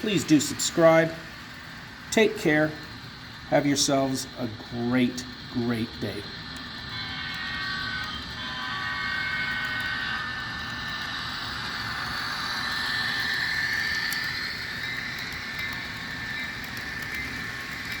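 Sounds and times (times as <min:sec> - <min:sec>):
model train diesel engine sound: 0:00.0 - 0:18.0.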